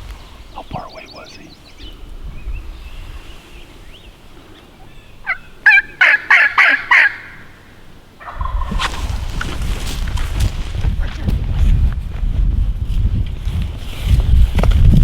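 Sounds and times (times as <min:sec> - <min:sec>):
low wind rumble on microphone: 0:00.0 - 0:05.7, 0:08.2 - 0:15.0
wild turkey gobbling: 0:04.8 - 0:09.2.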